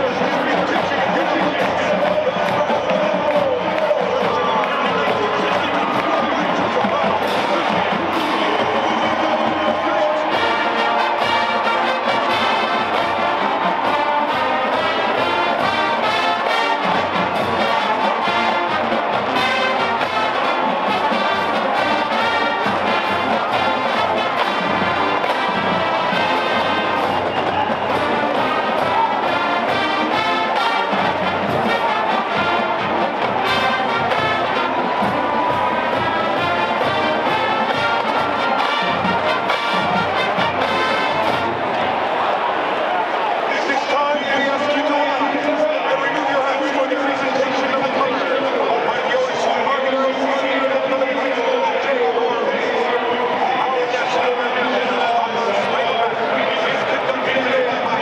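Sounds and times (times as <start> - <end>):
drumline beat: 0.0 - 42.8
trumpets and trombones: 0.0 - 51.9.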